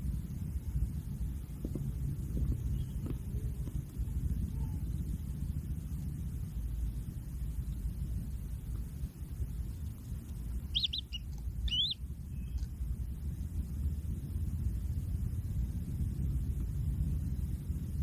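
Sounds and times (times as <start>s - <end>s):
steady low rumble: 0.0s - 18.0s
high bird chirps: 10.6s - 12.7s.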